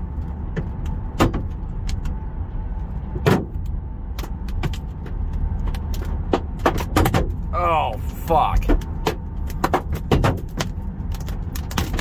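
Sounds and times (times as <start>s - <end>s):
hailstones banging on car: 8.7s - 10.7s.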